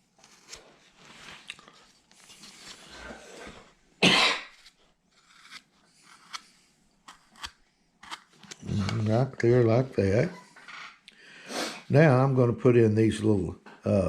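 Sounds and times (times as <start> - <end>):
person coughing: 4.0 - 4.5
carving gouge scraping wood: 4.5 - 9.0.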